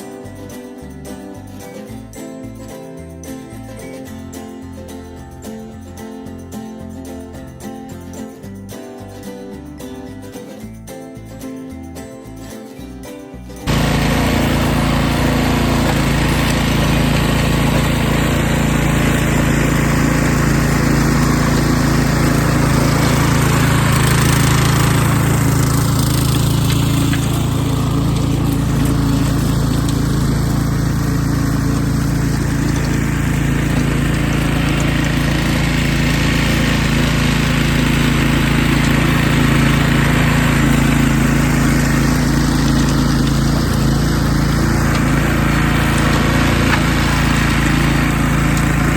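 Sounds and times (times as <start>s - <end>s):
small gasoline engine running: 13.6s - 48.9s.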